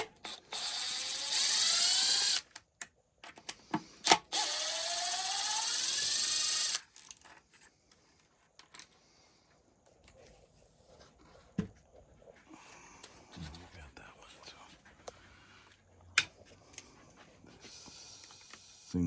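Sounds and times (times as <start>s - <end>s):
power driver motor whine: 4.2s - 6.8s.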